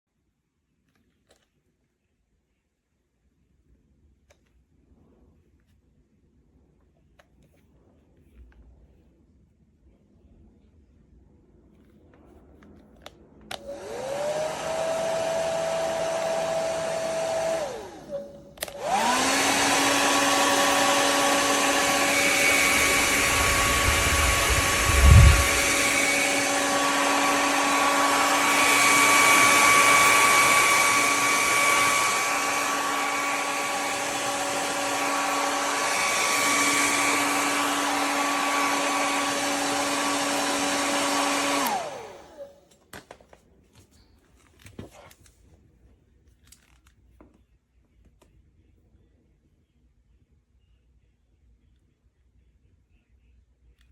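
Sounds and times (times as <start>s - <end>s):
hair dryer switch: 13.5s - 42.5s
hair dryer whining: 13.5s - 42.7s.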